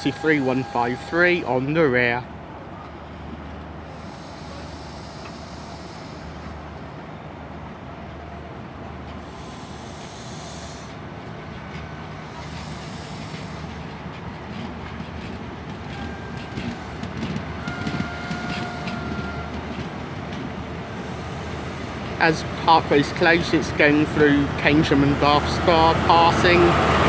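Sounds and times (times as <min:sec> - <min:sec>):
diesel train engine running: 0:00.0 - 0:27.0
wheels clicking over rail joints: 0:11.6 - 0:27.0.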